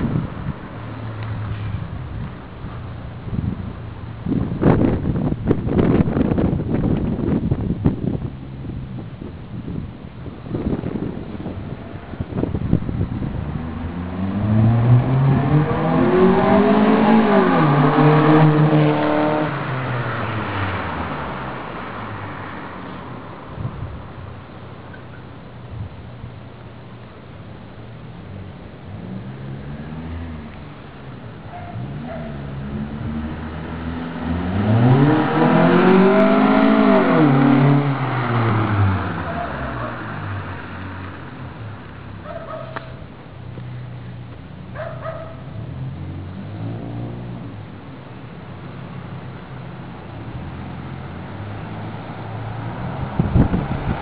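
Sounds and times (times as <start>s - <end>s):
car engine accelerating: 10.2s - 24.8s, 28.2s - 48.8s.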